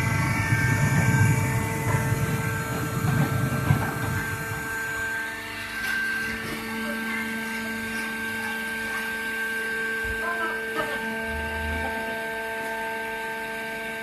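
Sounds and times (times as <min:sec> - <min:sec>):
low rumble: 0:00.0 - 0:05.2
baling machine humming: 0:00.0 - 0:14.0.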